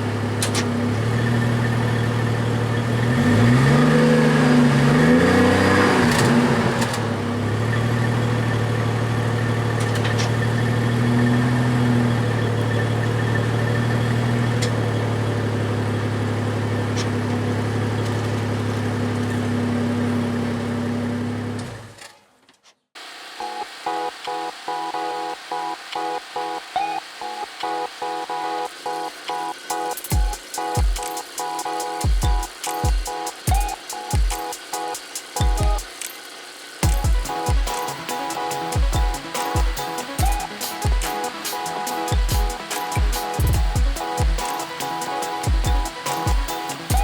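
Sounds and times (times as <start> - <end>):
car exhaust idling and revving: 0.0 - 21.7.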